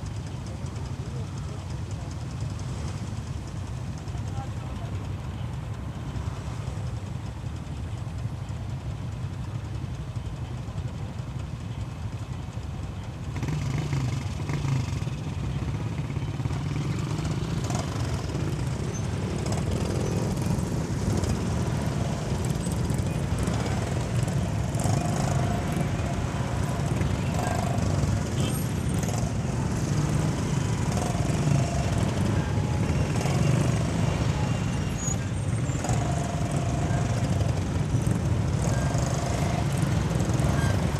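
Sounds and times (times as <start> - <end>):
road and wind noise: 0.0 - 40.9
motorcycle engine: 12.0 - 40.9.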